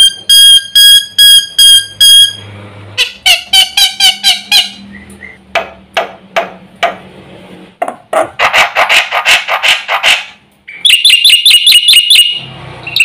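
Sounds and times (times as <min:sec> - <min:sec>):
starling whistling and chattering: 0:04.9 - 0:05.4.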